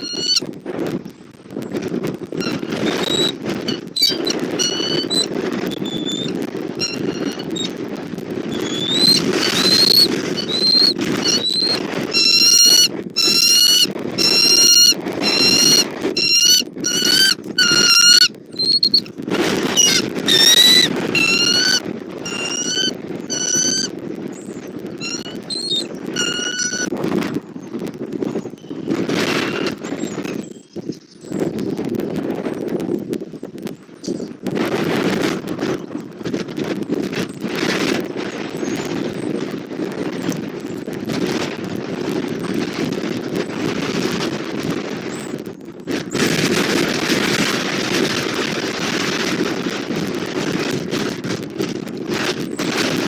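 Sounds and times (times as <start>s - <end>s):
eagles piping chirps: 0.0s - 0.4s, 2.4s - 7.7s, 8.5s - 23.9s, 25.0s - 26.9s
wind rumble on microphone: 0.0s - 53.0s.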